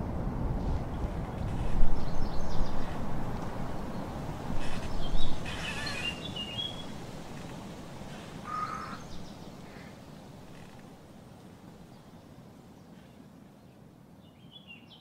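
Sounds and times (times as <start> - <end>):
short bird calls: 8.0 - 10.0.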